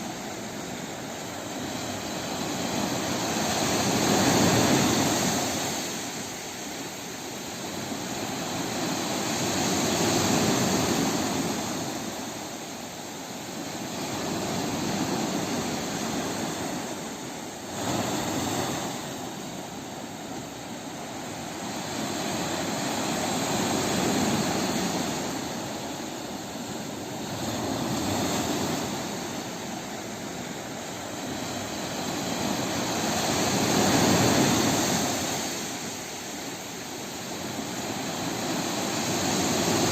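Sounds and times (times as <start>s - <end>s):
sea waves breaking: 0.0s - 39.9s.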